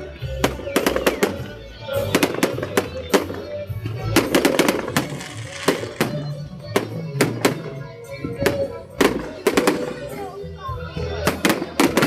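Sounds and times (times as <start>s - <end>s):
fireworks bangs: 0.4s - 7.7s.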